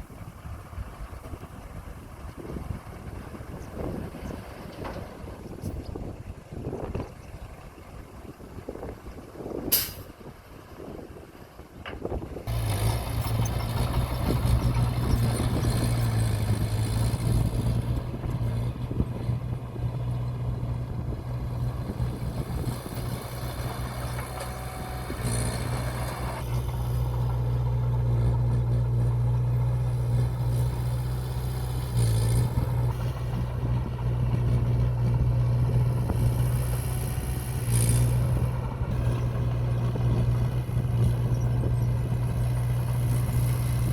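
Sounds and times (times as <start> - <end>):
diesel engine droning under load: 0.0 - 43.9
brief hisses: 9.7 - 10.1.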